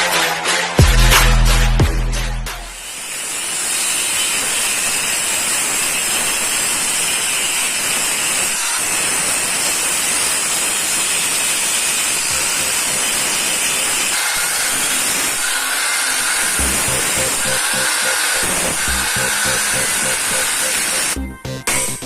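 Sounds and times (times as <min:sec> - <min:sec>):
pressurised spray hissing: 0:12.1 - 0:14.2, 0:16.4 - 0:21.2.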